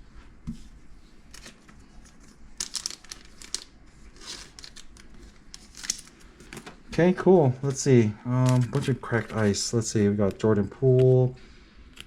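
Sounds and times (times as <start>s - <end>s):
plastic packaging crinkling: 1.3s - 6.8s, 8.3s - 9.6s.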